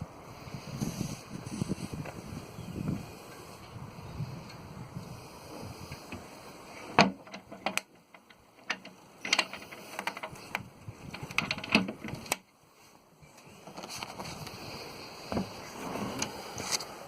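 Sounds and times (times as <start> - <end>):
irregular clicks and knocks: 6.9 - 12.5.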